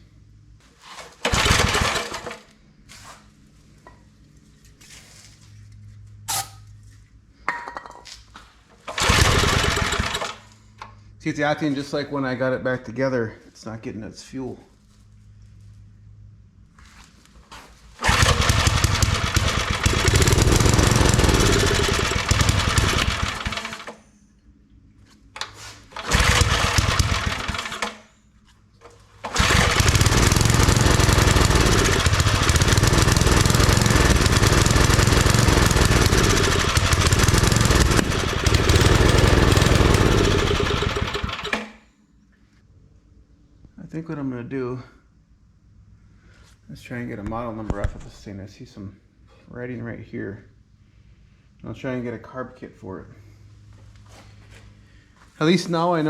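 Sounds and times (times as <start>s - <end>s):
small engine starting and running: 1.1s - 2.5s, 8.8s - 10.6s, 18.0s - 24.0s, 25.4s - 28.1s, 28.9s - 41.8s.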